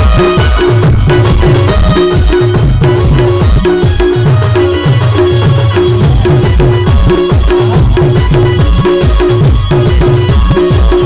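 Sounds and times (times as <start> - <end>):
low electronic drum hits: 0.0 - 4.2.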